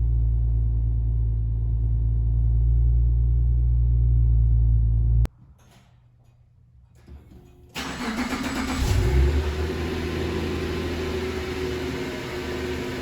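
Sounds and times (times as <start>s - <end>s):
car engine droning: 7.8s - 13.0s.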